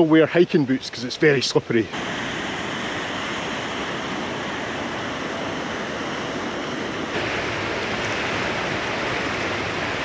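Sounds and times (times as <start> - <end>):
river rushing: 0.0 - 10.0.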